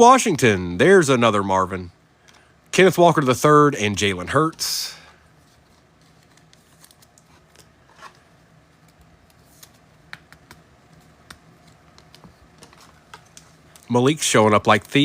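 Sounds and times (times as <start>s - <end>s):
low steady hum: 0.0s - 15.0s
trading cards being handled: 4.3s - 15.0s.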